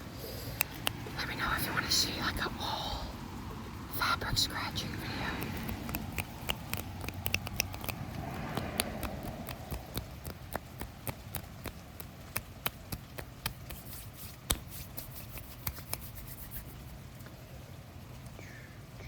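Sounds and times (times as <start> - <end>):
fabric scratching: 5.4 - 16.8.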